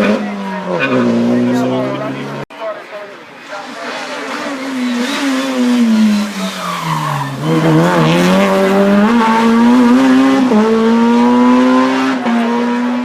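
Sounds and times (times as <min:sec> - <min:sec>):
race car engine accelerating: 0:03.6 - 0:13.0.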